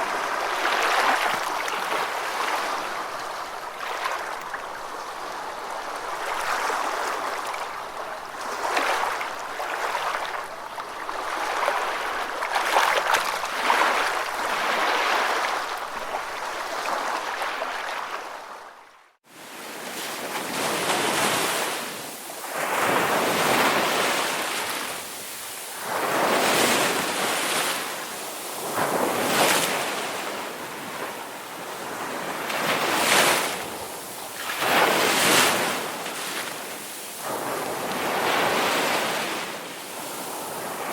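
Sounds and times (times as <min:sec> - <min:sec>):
ocean waves breaking: 0:19.3 - 0:40.9.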